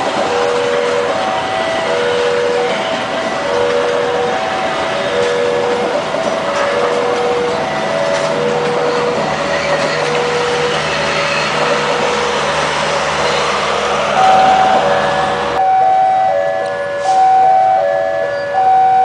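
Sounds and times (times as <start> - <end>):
passenger train rumbling past: 0.0 - 15.8
crossing signal two-note tones: 14.2 - 16.5.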